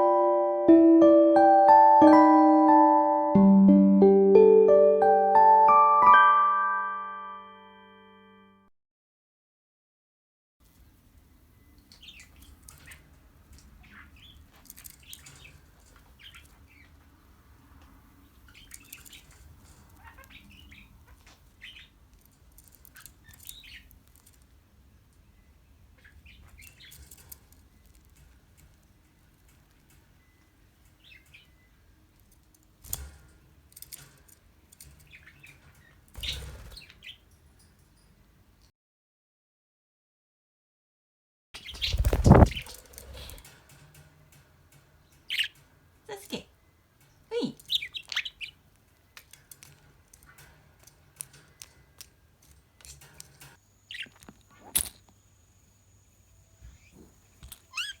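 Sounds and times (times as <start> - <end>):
thumps or rustles: 41.8 - 43.8
budgerigar chirping: 47.7 - 48.6, 57.7 - 58.0.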